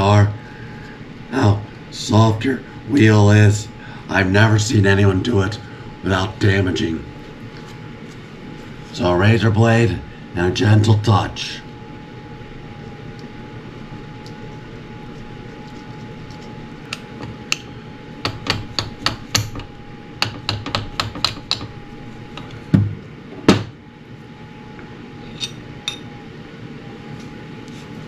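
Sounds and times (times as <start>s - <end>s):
faint steady hum: 0.0s - 28.0s
hand tools tapping on metal: 16.3s - 22.8s.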